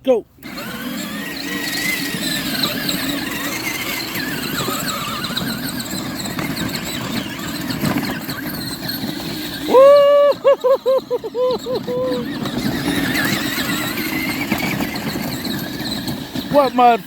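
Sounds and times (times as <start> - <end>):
toy truck motors whining: 0.4 - 17.0
loud high-pitched cry: 9.5 - 15.3.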